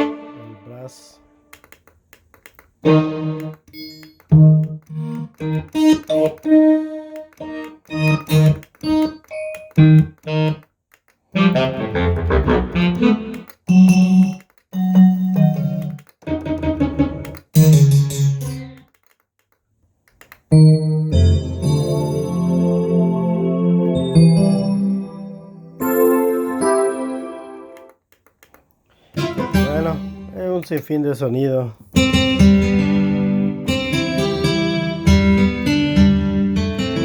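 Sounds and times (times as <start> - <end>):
synthesizer chord stabs: 0.0 - 1.4, 2.8 - 3.6, 11.4 - 14.4, 20.6 - 27.9.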